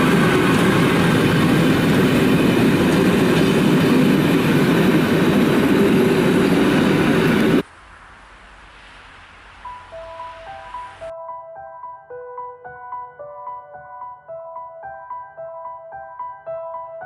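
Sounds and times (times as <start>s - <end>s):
train coaches rolling on rails: 0.0s - 7.6s.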